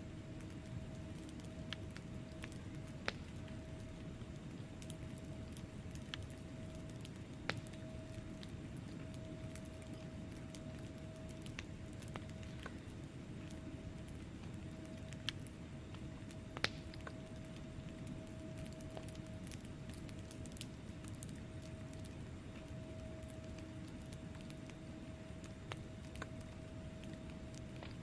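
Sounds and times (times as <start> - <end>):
low rumble of flames: 0.0 - 28.0
logs crackling and popping: 0.3 - 28.0.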